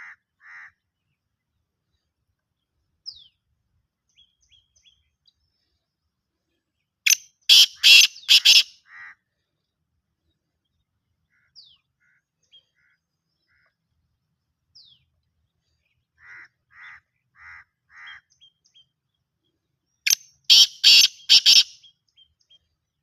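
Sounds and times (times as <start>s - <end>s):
harsh bird call: 7.1s - 9.1s, 20.5s - 21.9s.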